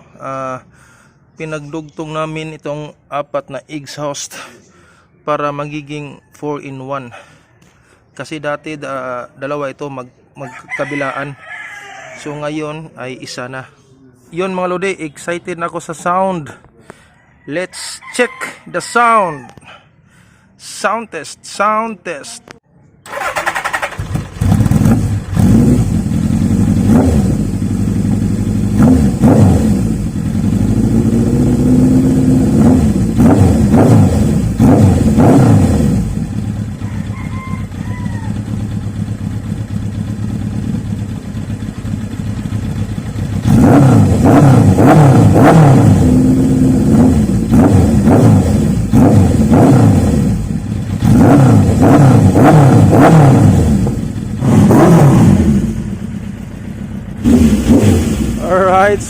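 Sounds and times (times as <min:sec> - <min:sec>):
motorcycle engine revving: 0:23.0 - 0:59.0
motorcycle engine idling: 0:23.1 - 0:59.0.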